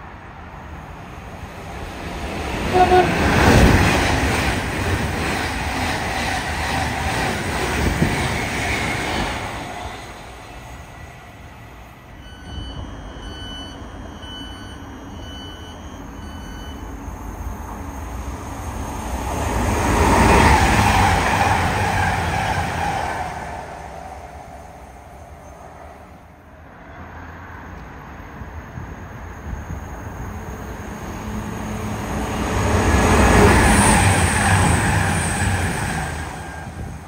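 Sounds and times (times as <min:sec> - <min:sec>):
passing train or traffic rush: 0:00.0 - 0:37.0
train rumble: 0:00.0 - 0:37.0
short electronic beeps: 0:12.2 - 0:17.0.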